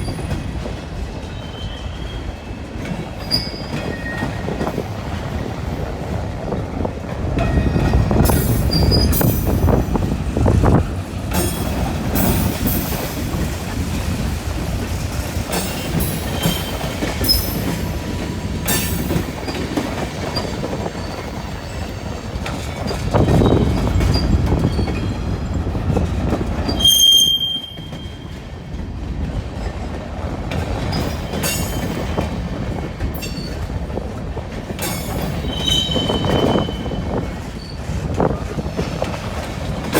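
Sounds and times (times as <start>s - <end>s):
steel wheels rumbling on rail: 0.0s - 39.9s
wheels squealing: 26.6s - 28.2s, 35.2s - 38.0s.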